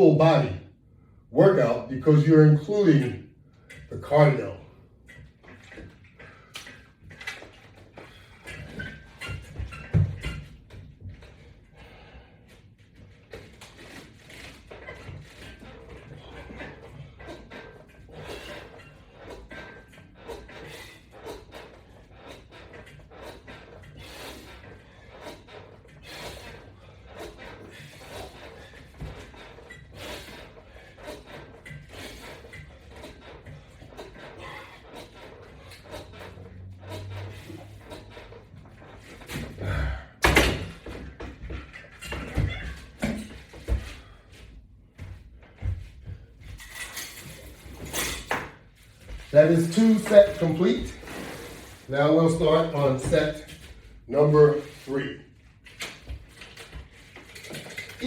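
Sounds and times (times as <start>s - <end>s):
exercise equipment knocks and rustles: 3.6s - 51.3s, 52.0s - 58.0s
person breathing hard: 11.6s - 12.7s, 39.4s - 40.3s
soft knocks and scuffs: 40.8s - 46.6s.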